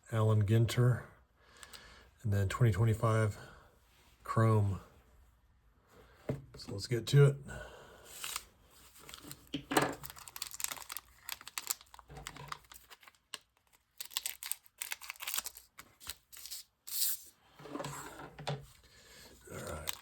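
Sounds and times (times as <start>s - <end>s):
wrapper crinkling and tearing: 8.2s - 17.3s, 19.5s - 20.0s.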